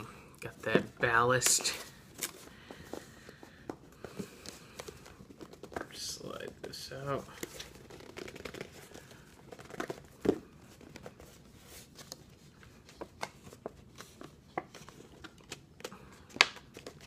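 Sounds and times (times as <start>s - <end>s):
packaging clicks and rustles: 12.0s - 17.0s.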